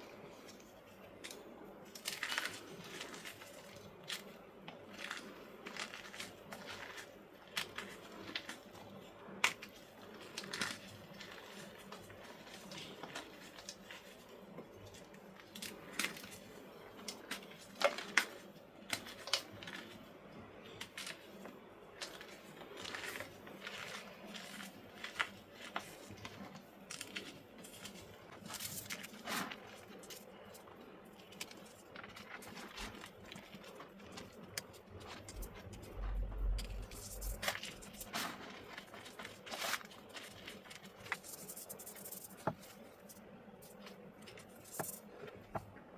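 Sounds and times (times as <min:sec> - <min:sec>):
chalk blocks crunching: 0:26.9 - 0:45.1.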